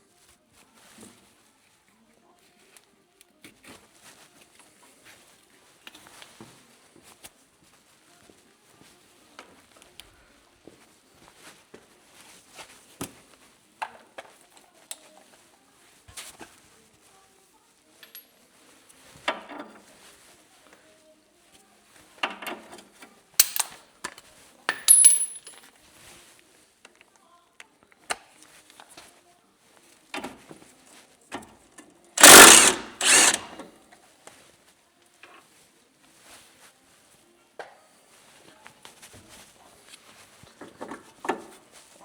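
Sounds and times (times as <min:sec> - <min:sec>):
metal tools clinking: 0:23.4 - 0:23.8, 0:24.7 - 0:25.6, 0:32.2 - 0:33.6.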